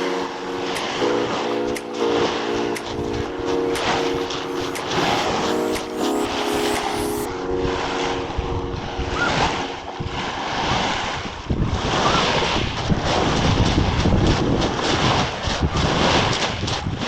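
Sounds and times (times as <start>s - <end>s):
steady held tones: 0.0s - 10.5s
wind buffeting microphone: 7.6s - 17.0s.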